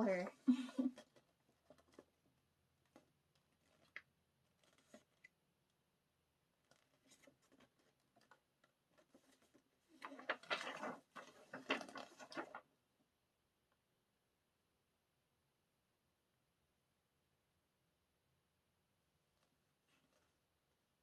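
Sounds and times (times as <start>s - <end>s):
paper rustling: 0.8s - 5.4s, 6.6s - 12.7s.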